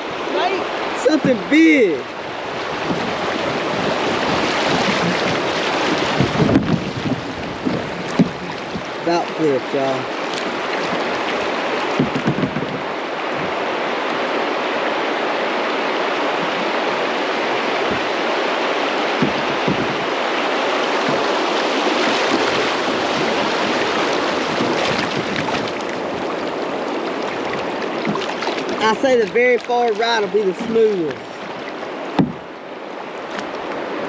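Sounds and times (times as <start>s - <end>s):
whitewater rushing over rapids: 0.0s - 34.0s
short knocks: 4.6s - 9.0s, 10.3s - 13.6s, 19.1s - 20.3s, 20.9s - 21.5s, 32.1s - 32.5s.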